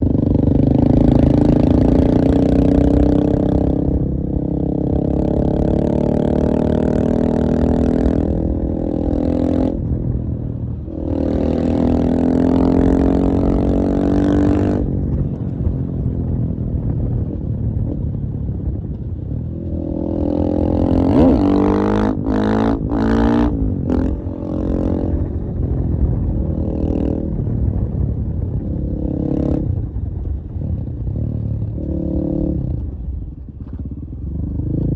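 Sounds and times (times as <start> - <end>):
motorcycle engine revving: 0.0 - 16.1, 16.8 - 34.9.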